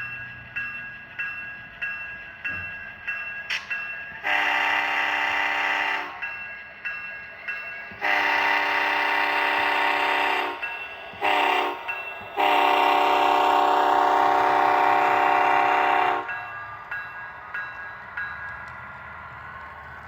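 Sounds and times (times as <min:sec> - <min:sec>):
model train air horn blasts: 0:04.2 - 0:06.2, 0:08.0 - 0:10.6, 0:11.2 - 0:16.3.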